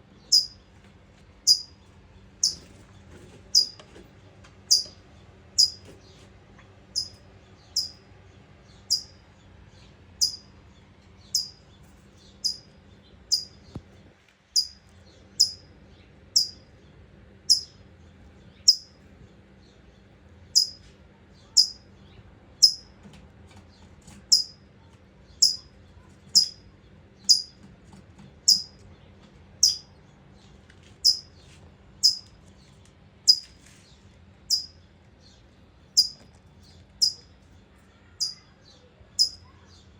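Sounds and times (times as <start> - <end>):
bird alarm chip notes: 0.3 - 0.6, 1.5 - 1.7, 2.4 - 2.7, 3.6 - 3.8, 4.7 - 5.0, 5.6 - 5.9, 7.0 - 8.0, 8.9 - 9.2, 10.2 - 10.5, 11.3 - 11.6, 12.4 - 12.7, 13.3 - 13.6, 14.6 - 14.8, 15.4 - 15.6, 16.4 - 16.6, 17.5 - 17.8, 18.7 - 18.9, 20.6 - 20.8, 21.6 - 21.8, 22.6 - 22.9, 24.3 - 24.6, 25.4 - 25.7, 26.4 - 26.6, 27.3 - 27.5, 28.5 - 28.8, 29.6 - 29.9, 31.0 - 31.3, 32.0 - 32.3, 33.3 - 33.5, 34.5 - 34.8, 36.0 - 36.2, 37.0 - 37.2, 38.2 - 38.4, 39.2 - 39.4.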